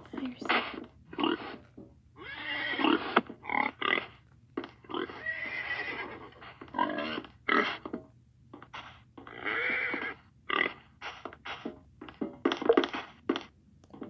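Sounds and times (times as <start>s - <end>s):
horse neighing: 2.2s - 3.2s, 5.0s - 6.3s.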